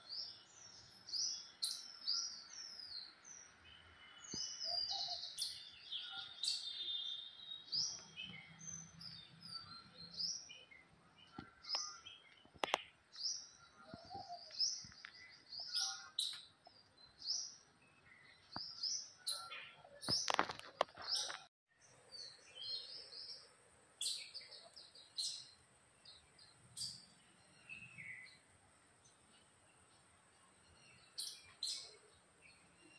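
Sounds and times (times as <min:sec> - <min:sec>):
small birds chirping and twittering: 0:00.0 - 0:32.9.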